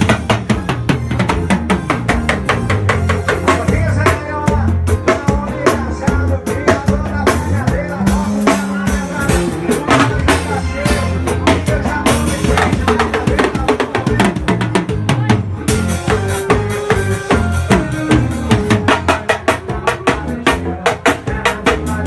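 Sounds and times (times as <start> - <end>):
drum kit playing fast beat: 0.0 - 22.0.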